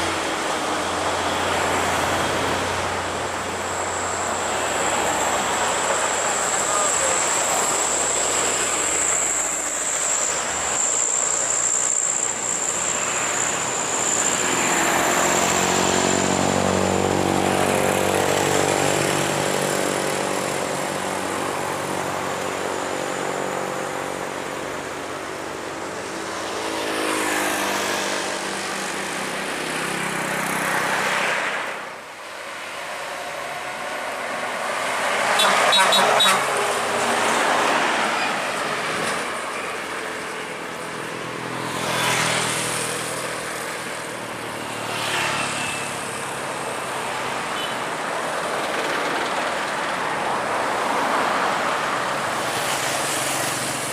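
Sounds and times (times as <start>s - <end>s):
truck engines droning past: 0.0s - 31.9s.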